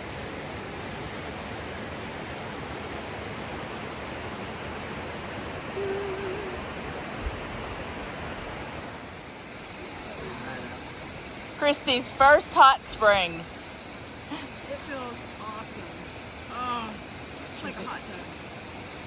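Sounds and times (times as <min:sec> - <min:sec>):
creek water rushing: 0:00.0 - 0:19.0
person humming: 0:05.7 - 0:06.7.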